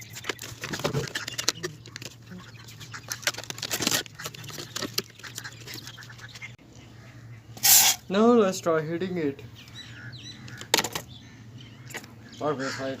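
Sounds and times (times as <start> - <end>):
tape and paper clicks and crinkles: 0.0 - 6.6.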